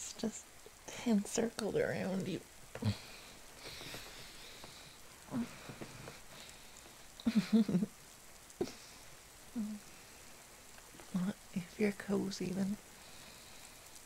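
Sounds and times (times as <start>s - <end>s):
soft steady rain: 0.0s - 14.0s
quiet voice sounds: 2.8s - 3.2s, 9.5s - 9.9s.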